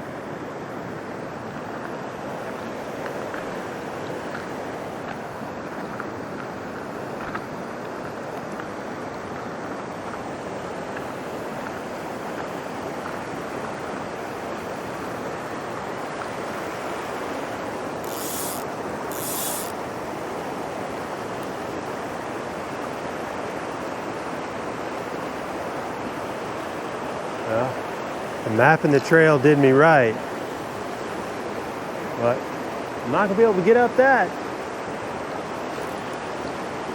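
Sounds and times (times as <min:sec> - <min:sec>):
stream water rushing: 0:00.0 - 0:36.9
high hissing scrapes: 0:18.0 - 0:19.8.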